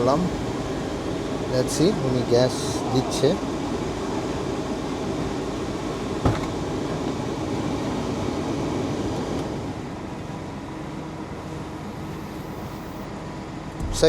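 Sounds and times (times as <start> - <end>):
car engine idling: 0.0 - 8.4
car blower fan running: 0.0 - 14.0.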